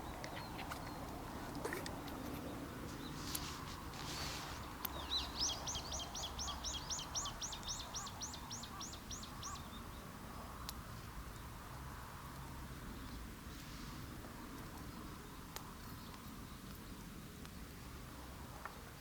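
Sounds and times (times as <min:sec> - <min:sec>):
bird chirping: 0:00.0 - 0:03.6, 0:04.2 - 0:10.1
low background noise: 0:00.0 - 0:19.0.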